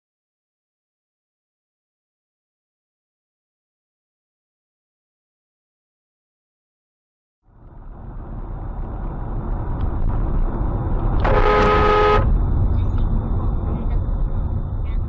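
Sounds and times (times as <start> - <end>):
road and engine rumble: 7.4 - 15.0
car horn: 11.2 - 12.4.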